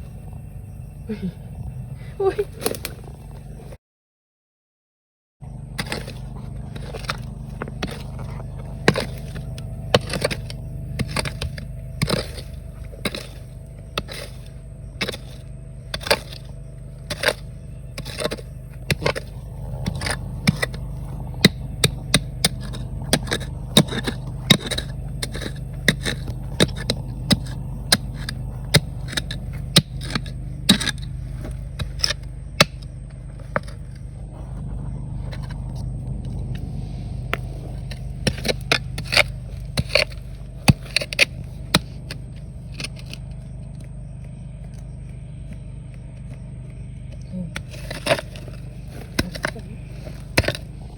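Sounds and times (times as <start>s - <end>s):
low rumble: 0.0s - 3.8s, 5.4s - 50.9s
digging tool striking rocks: 5.7s - 34.1s, 37.2s - 50.9s.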